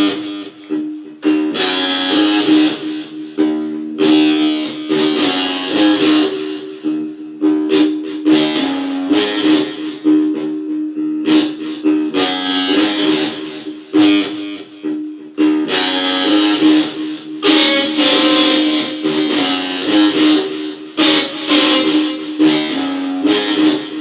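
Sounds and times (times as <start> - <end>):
blues guitar playing: 0.0 - 24.0.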